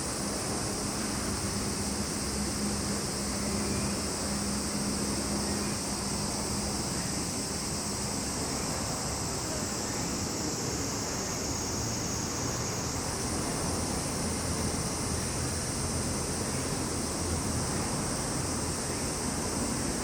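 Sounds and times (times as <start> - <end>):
cicadas droning: 0.0 - 20.0
higher-pitched insect layer: 0.0 - 20.0.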